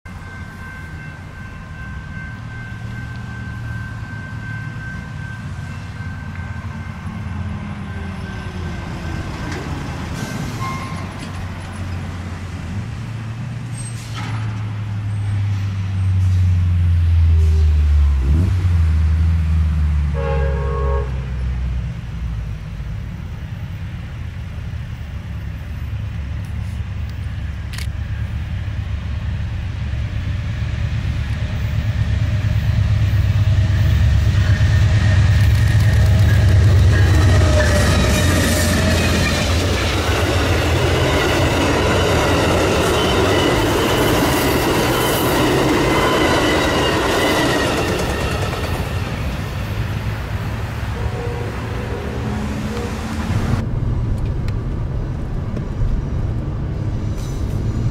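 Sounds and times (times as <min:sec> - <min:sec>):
diesel locomotive rumble: 0:00.1 - 0:57.9
train cars rushing past: 0:00.1 - 0:57.9
train horn blast: 0:20.1 - 0:21.6, 0:50.8 - 0:53.6.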